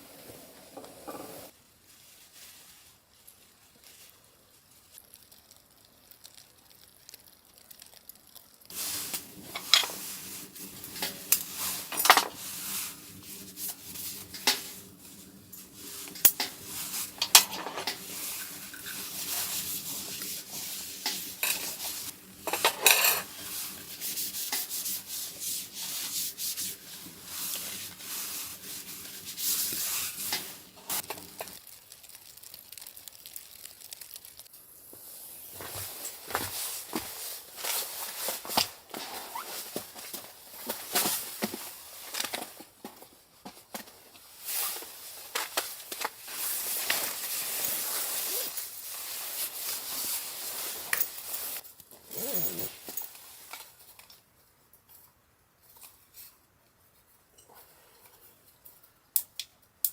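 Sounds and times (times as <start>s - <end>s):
faint sizzle: 0.0s - 54.2s
cookware clicks and clinks: 17.2s - 19.2s, 22.5s - 23.4s.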